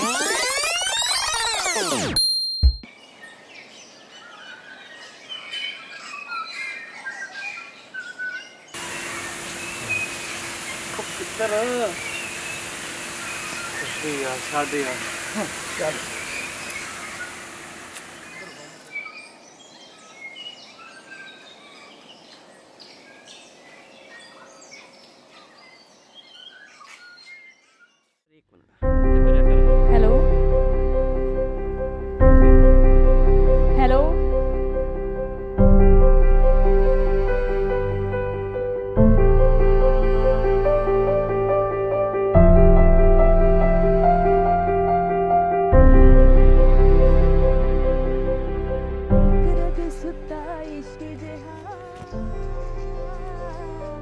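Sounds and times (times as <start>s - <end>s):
small birds chirping: 2.7s - 28.7s, 49.7s - 54.0s
outdoor background hiss: 2.9s - 28.8s
steady hiss: 8.8s - 18.7s.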